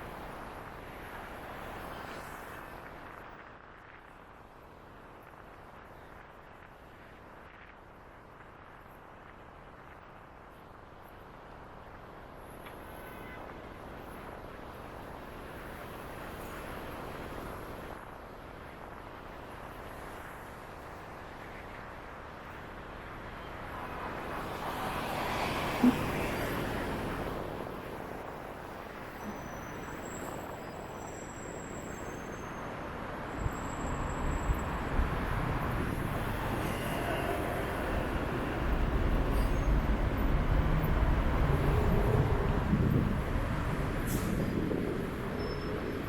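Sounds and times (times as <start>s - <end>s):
heavy low traffic rumble: 32.7s - 46.0s.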